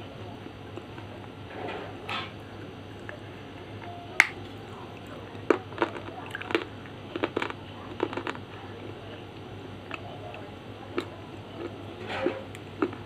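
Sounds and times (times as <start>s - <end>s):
pencil being chewed crunching: 5.0s - 8.4s.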